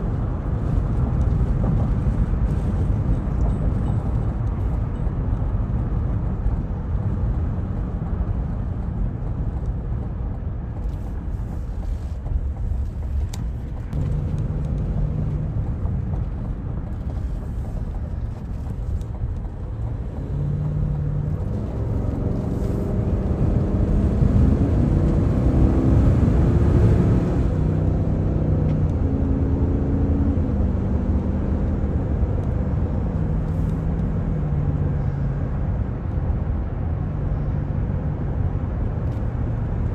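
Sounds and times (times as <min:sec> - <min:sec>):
car engine running: 0:00.0 - 0:27.8
road and tyre rumble: 0:00.0 - 0:39.9.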